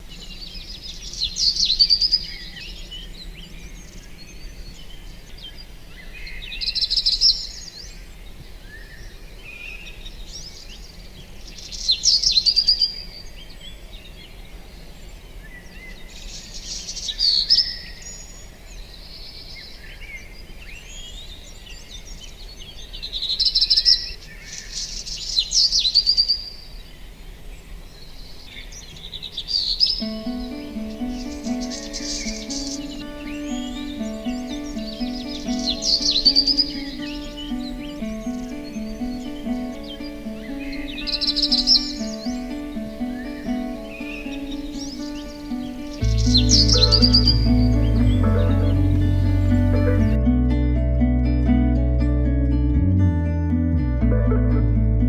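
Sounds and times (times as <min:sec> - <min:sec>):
songbird singing: 0:00.0 - 0:50.2
faint bird chirps: 0:27.9 - 0:50.2.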